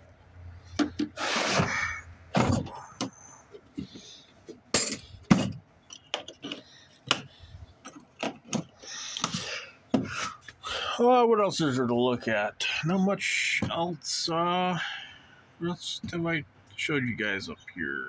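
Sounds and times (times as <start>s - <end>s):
tools and plastic cases clattering: 0.6s - 10.3s.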